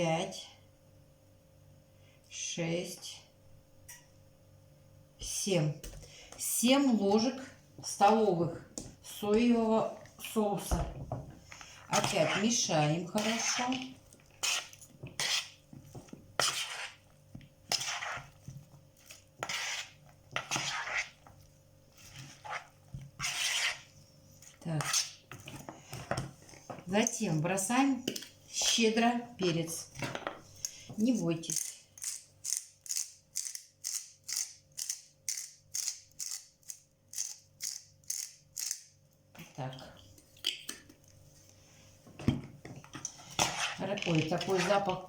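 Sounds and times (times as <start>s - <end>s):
spoon scraping against a bowl: 11.9s - 17.1s, 17.7s - 21.3s, 22.0s - 23.9s, 24.5s - 26.2s, 42.9s - 45.0s
pepper mill grinding: 31.5s - 38.8s.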